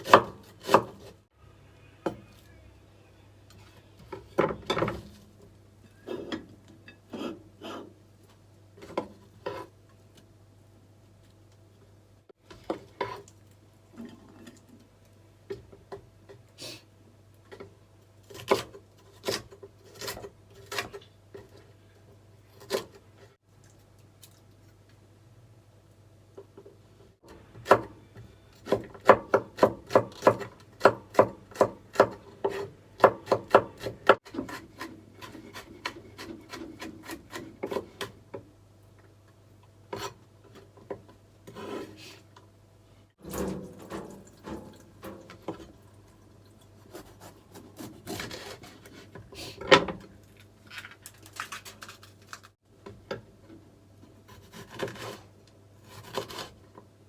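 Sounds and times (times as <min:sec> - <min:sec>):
knife chopping on wooden board: 0:00.0 - 0:01.1, 0:28.6 - 0:38.2
scraping on chopping board: 0:07.1 - 0:08.0, 0:08.8 - 0:09.8, 0:41.4 - 0:42.2, 0:46.8 - 0:49.5, 0:54.3 - 0:56.6.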